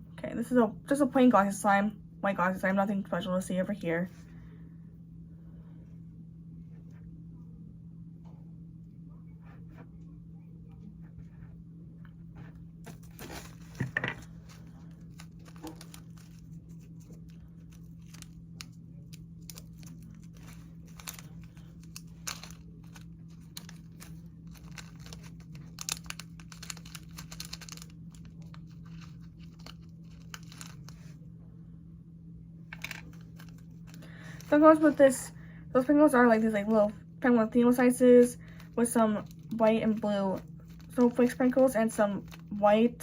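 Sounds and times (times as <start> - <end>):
low steady hum: 0.0 - 43.0
plastic packaging crinkling: 12.9 - 31.1.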